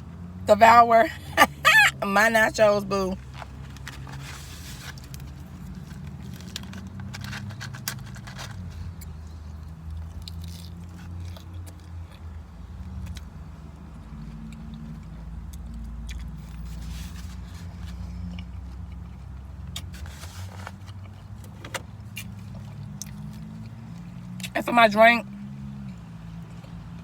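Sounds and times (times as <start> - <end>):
crunching tortilla chips: 3.3 - 13.3.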